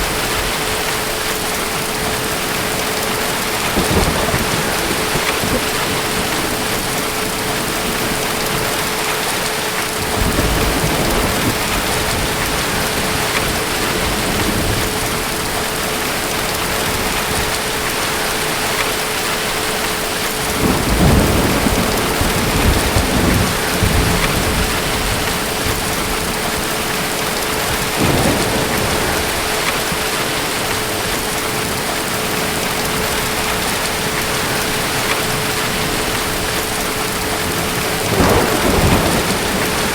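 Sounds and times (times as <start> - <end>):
heavy rain: 0.0 - 39.9
thunder rumbling: 0.0 - 39.9.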